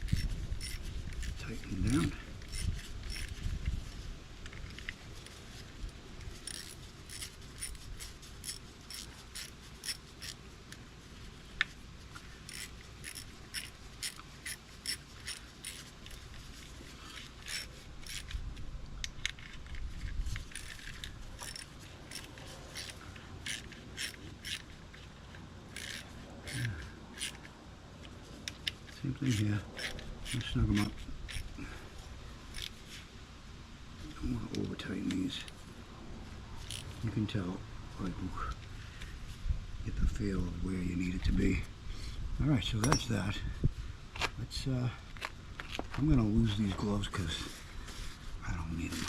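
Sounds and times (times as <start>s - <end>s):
hand ratchet clicking: 0.0s - 3.4s, 6.2s - 10.8s, 12.2s - 16.4s, 17.1s - 18.4s, 19.0s - 31.6s, 32.5s - 32.8s, 36.6s - 37.0s.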